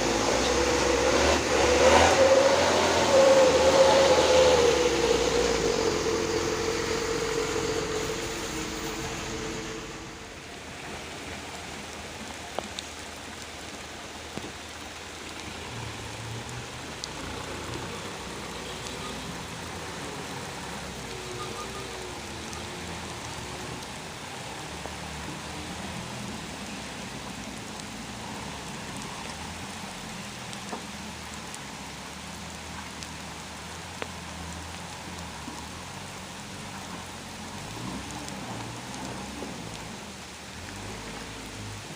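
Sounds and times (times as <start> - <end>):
truck engine: 0.0 - 31.6
steady rain: 0.0 - 41.9.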